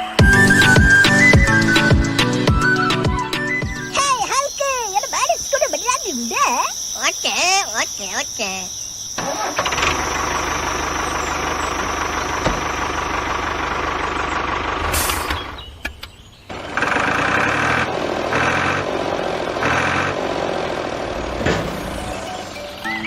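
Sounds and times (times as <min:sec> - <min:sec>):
small engine running: 0:09.2 - 0:15.6, 0:16.5 - 0:22.8.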